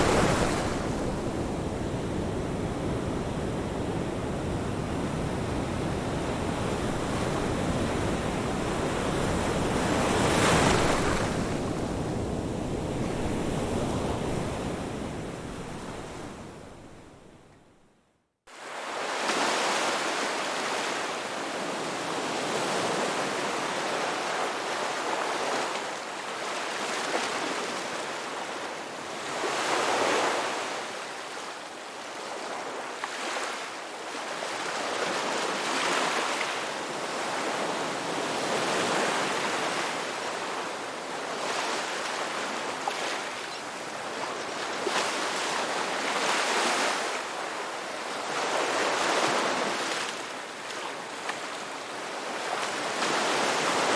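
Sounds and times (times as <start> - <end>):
waves breaking: 0.0 - 12.1.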